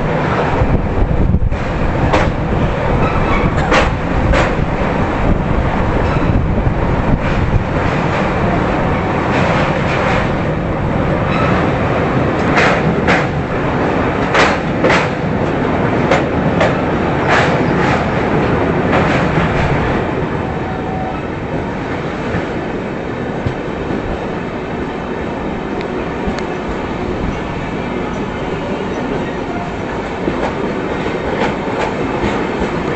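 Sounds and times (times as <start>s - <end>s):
train rumbling: 0.0s - 32.9s
wheels clicking over rail joints: 1.3s - 20.1s.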